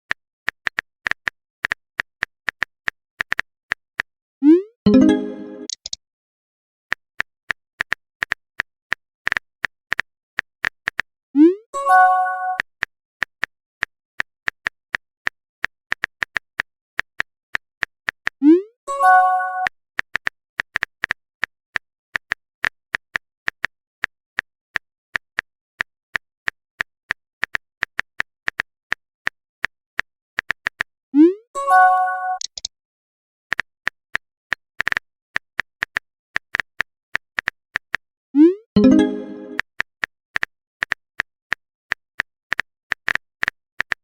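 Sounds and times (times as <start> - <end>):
message sent pop and chime: 4.9 - 5.8, 31.6 - 32.6, 38.4 - 39.6
phone keyboard typing clicks: 4.9 - 6.0, 31.8 - 32.7.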